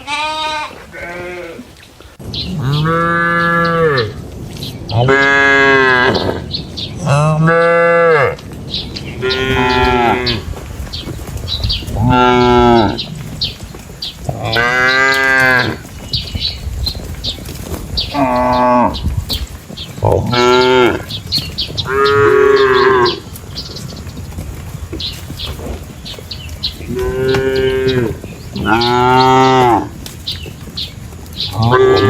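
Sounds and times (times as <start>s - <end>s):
cows mooing: 2.4s - 4.2s, 5.0s - 8.4s, 9.2s - 10.5s, 11.9s - 13.4s, 14.2s - 15.9s, 18.0s - 19.1s, 20.0s - 23.6s, 26.8s - 30.0s, 31.4s - 32.0s.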